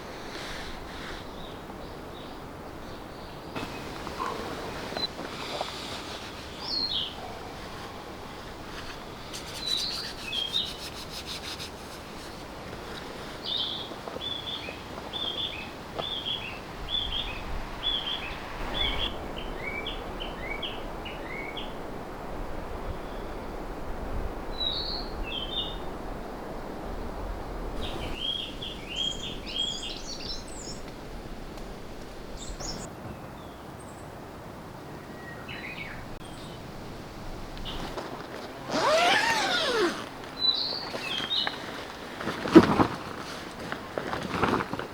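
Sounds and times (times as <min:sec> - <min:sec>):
steady background hiss: 0:00.0 - 0:44.9
songbirds chirping: 0:00.6 - 0:21.8, 0:27.8 - 0:34.2, 0:34.8 - 0:43.7.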